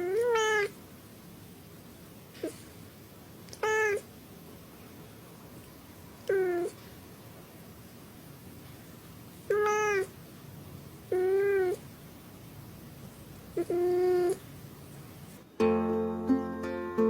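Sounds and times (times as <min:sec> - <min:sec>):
cat meowing: 0:00.0 - 0:00.8, 0:03.5 - 0:04.1, 0:06.2 - 0:06.8, 0:09.5 - 0:10.2, 0:11.1 - 0:11.8, 0:13.6 - 0:14.5.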